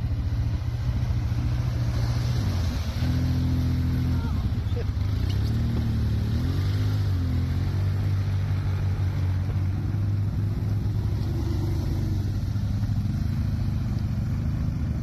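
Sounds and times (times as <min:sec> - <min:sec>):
quad bike engine running: 0:00.0 - 0:15.0.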